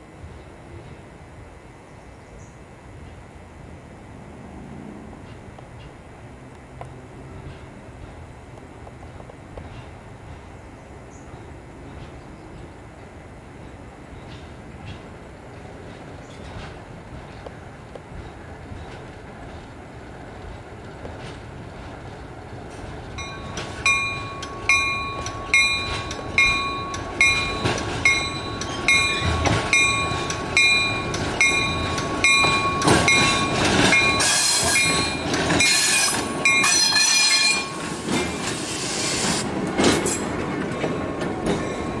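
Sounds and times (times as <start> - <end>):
train running: 0.0 - 42.0
bell ringing: 23.2 - 37.9
loud hissing bursts: 38.6 - 39.5.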